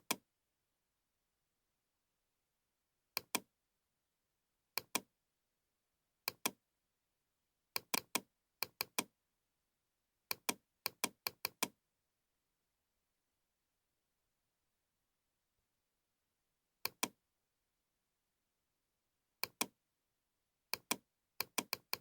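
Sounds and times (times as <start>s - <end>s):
computer mouse clicks: 3.2s - 3.4s, 4.8s - 5.0s, 6.3s - 6.6s, 7.8s - 9.1s, 10.3s - 11.7s, 16.8s - 17.2s, 19.4s - 19.7s, 20.7s - 22.0s.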